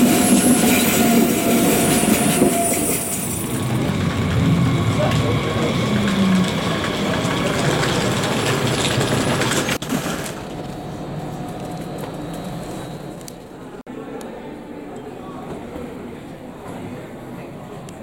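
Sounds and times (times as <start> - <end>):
train rumbling: 0.0 - 13.8.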